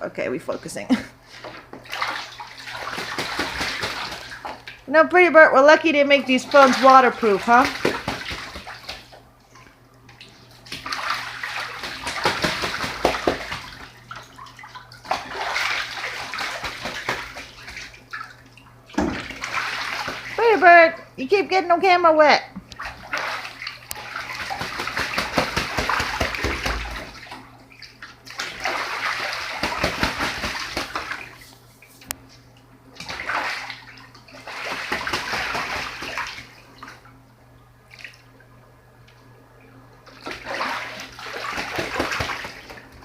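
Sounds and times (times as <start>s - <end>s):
goose splashing in water: 1.8s - 4.9s, 6.2s - 9.2s, 10.6s - 18.4s, 19.0s - 20.5s, 22.8s - 31.5s, 33.0s - 37.0s, 40.2s - 43.0s.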